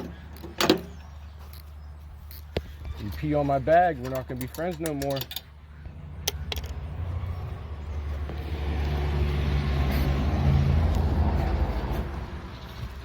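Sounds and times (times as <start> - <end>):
vehicle passing by: 5.8 - 13.0.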